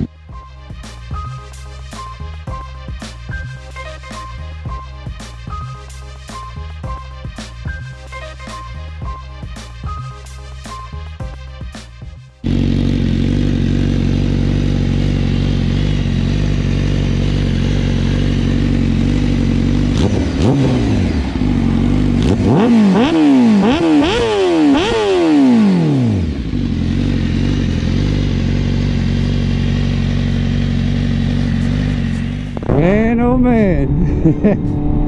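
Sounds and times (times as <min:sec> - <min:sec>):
motorcycle engine idling and revving: 0:12.4 - 0:33.2.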